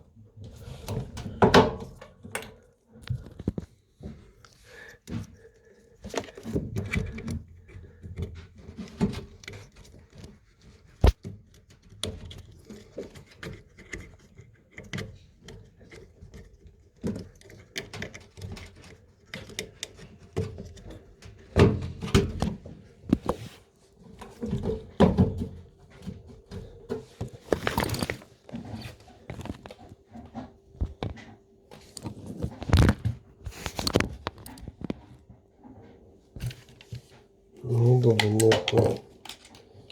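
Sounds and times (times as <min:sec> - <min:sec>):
hands handling plastic and metal parts: 0:26.0 - 0:35.1, 0:37.8 - 0:39.9.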